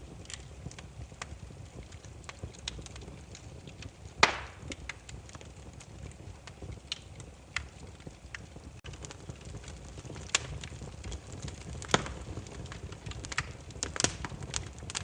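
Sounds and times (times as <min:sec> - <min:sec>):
firewood crackling: 0:00.0 - 0:15.0.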